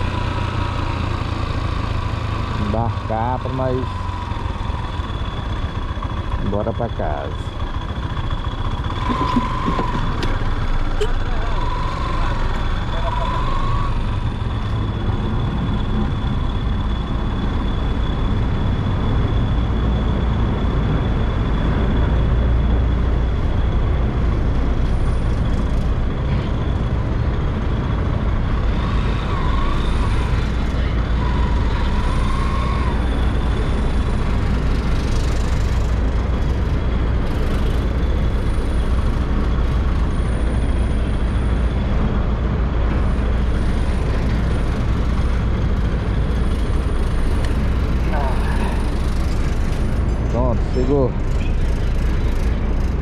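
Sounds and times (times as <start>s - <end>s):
motorcycle engine rumbling: 0.0s - 40.8s.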